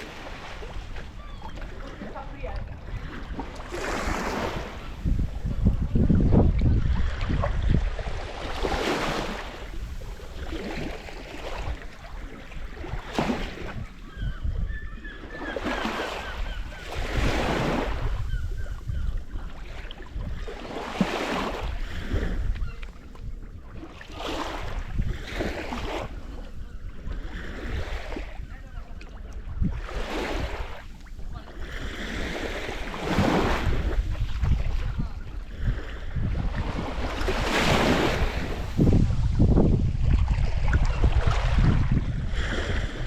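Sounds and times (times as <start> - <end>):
small waves washing ashore: 0.0 - 43.0
wind on microphone: 0.0 - 43.0.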